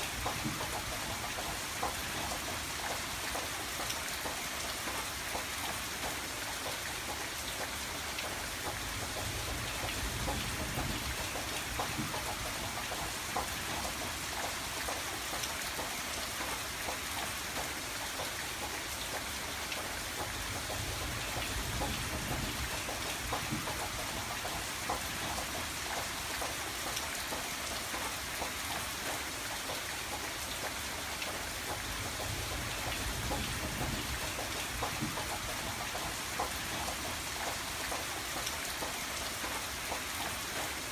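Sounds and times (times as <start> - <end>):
rain on window glass: 0.0 - 40.9.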